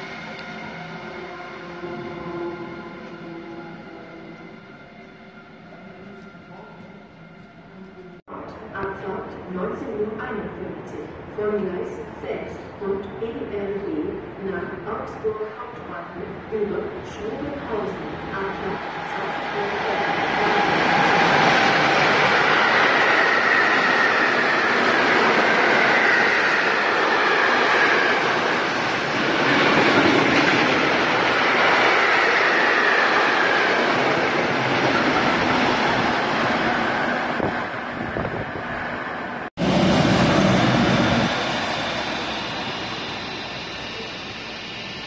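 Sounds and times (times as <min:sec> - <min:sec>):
freight train wheels rumbling on rails: 0:17.0 - 0:45.0.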